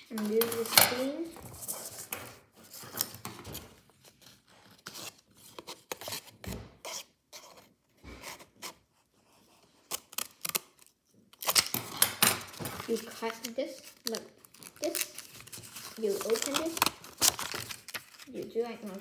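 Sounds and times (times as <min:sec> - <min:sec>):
paper rustling: 0:00.2 - 0:19.0
scissors snipping paper: 0:09.4 - 0:19.0.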